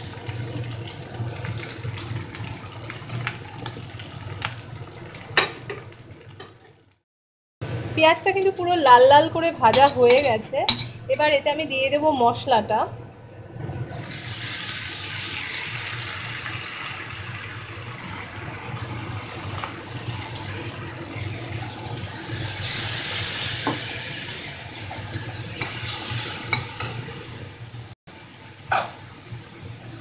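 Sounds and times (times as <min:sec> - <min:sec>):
paste sizzling in hot oil: 0:14.1 - 0:27.0.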